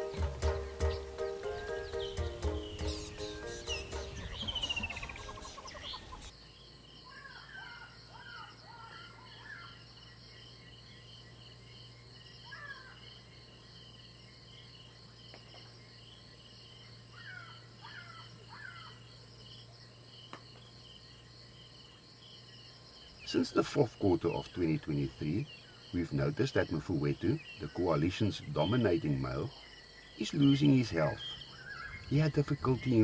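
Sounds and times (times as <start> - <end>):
music: 0.0 - 5.6
bird chirping: 0.0 - 33.0
insect chirping: 0.0 - 33.0.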